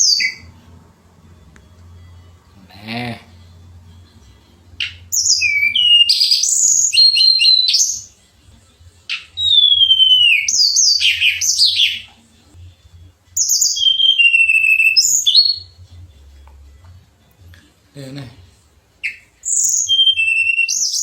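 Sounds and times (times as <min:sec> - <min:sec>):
songbird whistles and trills: 0:00.0 - 0:00.6, 0:04.8 - 0:08.2, 0:09.1 - 0:12.1, 0:13.4 - 0:15.8, 0:19.0 - 0:21.0.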